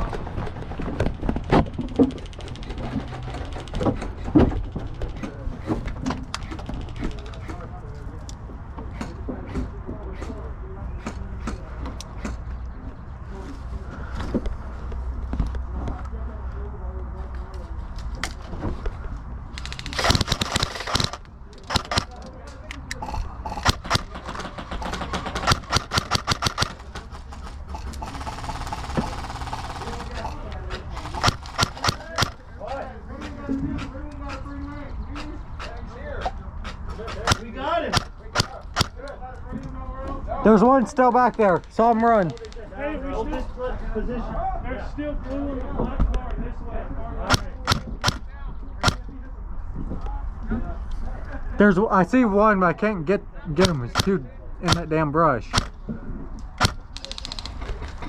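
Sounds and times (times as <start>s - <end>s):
airsoft gun full-auto burst: 19.7s - 22.1s, 23.6s - 26.8s, 28.0s - 30.4s, 31.0s - 32.4s
airsoft gun pops: 47.3s - 48.2s, 53.6s - 54.1s.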